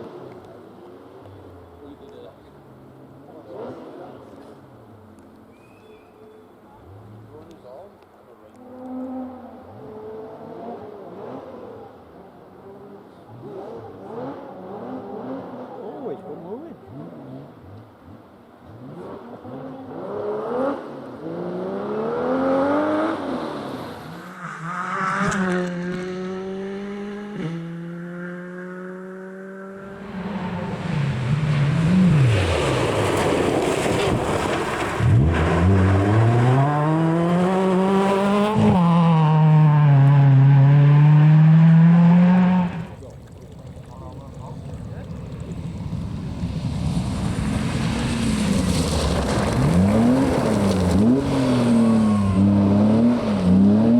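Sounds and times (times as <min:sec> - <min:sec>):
rally car engine at full throttle: 0:00.0 - 0:05.2, 0:06.7 - 0:53.9
tyres rushing over gravel: 0:32.1 - 0:36.1, 0:42.7 - 0:51.1.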